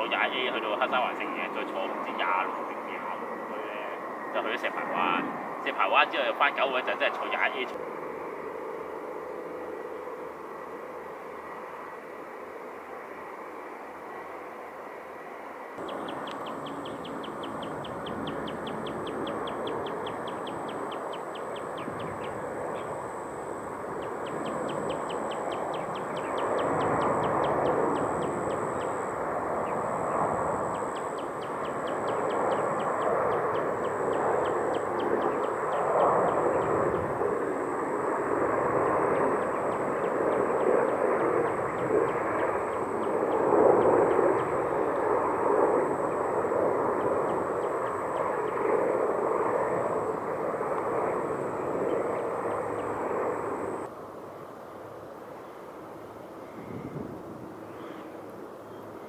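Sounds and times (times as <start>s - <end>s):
jet airliner engines running: 0.0s - 59.0s
high chirping ticks: 15.8s - 23.0s
high engine whine: 15.8s - 53.9s.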